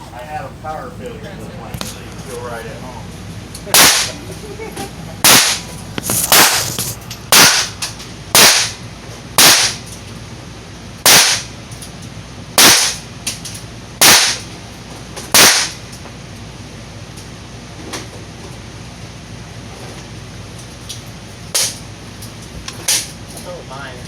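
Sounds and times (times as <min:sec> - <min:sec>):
handgun shots: 0:03.7 - 0:04.2, 0:05.2 - 0:05.7, 0:07.3 - 0:07.8, 0:08.4 - 0:08.8, 0:09.4 - 0:09.9, 0:11.1 - 0:11.5, 0:12.6 - 0:13.0, 0:14.0 - 0:14.5, 0:15.4 - 0:15.8.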